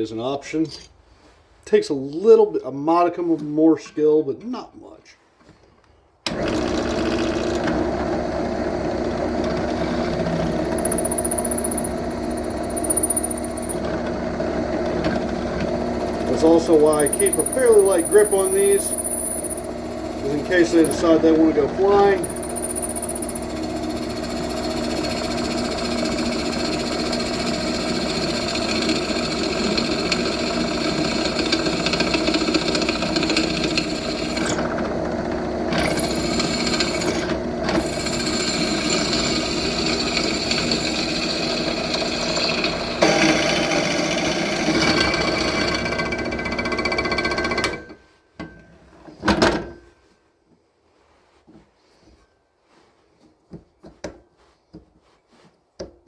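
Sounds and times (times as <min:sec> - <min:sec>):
electric drill boring steel: 0:06.3 - 0:47.9.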